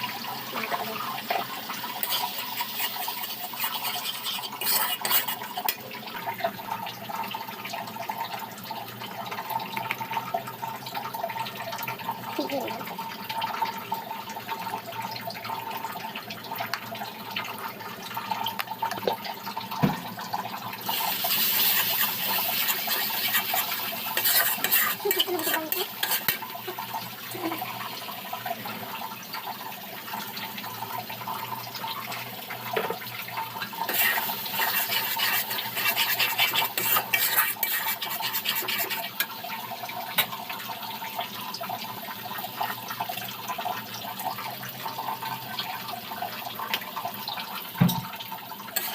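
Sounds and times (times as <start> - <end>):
scrubbing and splashing: 21.3 - 26.4, 33.9 - 39.3.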